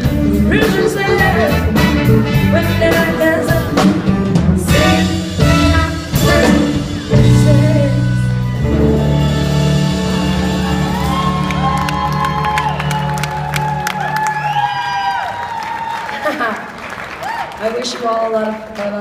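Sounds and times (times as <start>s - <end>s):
live band playing: 0.0s - 19.0s
crowd whooping and cheering: 10.0s - 17.8s.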